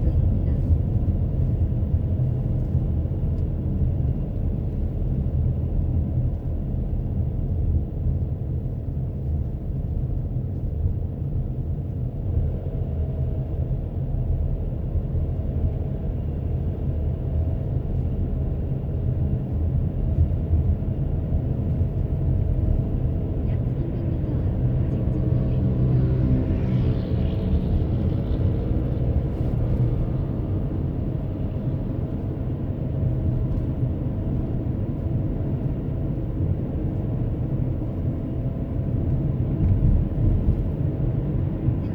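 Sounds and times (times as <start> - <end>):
car driving interior rumble: 0.0 - 41.9.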